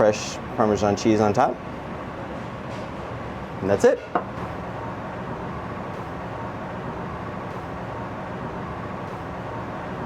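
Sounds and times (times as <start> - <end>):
machine-like hum: 0.0 - 10.0.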